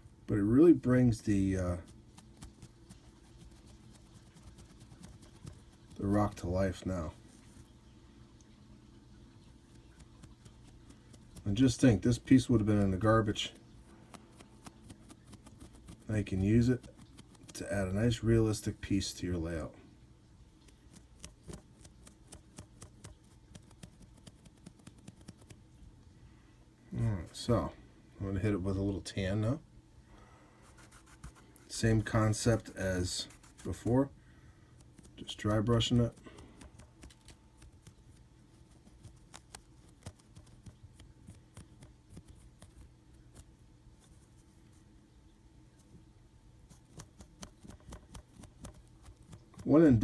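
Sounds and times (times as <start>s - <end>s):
paintbrush scratching on plaster: 1.3s - 7.7s, 9.6s - 17.9s, 20.7s - 25.6s, 30.6s - 34.0s, 34.8s - 44.5s, 46.7s - 50.0s.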